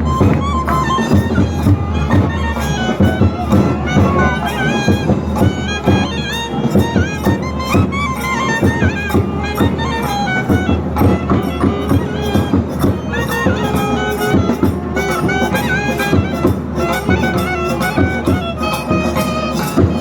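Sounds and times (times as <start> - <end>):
double-reed wind instrument melody: 0.0 - 20.0
fast drum strokes: 0.0 - 20.0.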